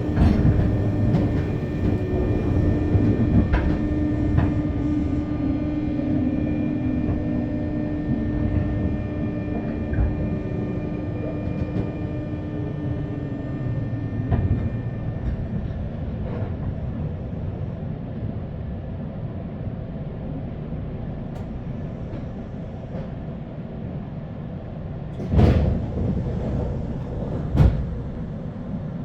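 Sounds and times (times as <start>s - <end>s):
train motor whine: 0.0s - 17.2s
train running rumble: 0.0s - 29.0s.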